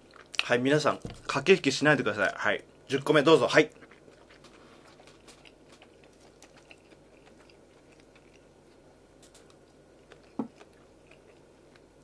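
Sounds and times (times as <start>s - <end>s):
low steady hum: 0.0s - 12.0s
person chewing: 3.7s - 12.0s.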